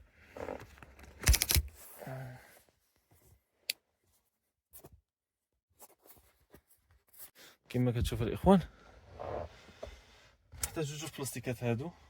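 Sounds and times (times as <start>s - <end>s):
faint scraping handling sounds: 5.8s - 7.6s.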